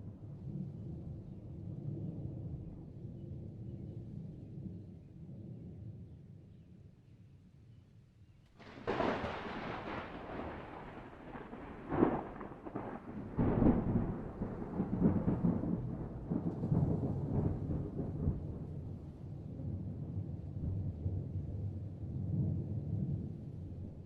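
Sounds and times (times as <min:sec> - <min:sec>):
thunder crashing and rumbling: 0:08.6 - 0:19.0.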